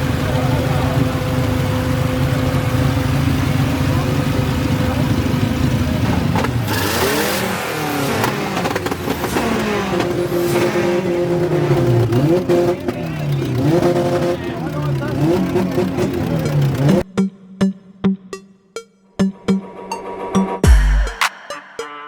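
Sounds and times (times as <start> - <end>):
car engines revving: 0.0 - 17.1.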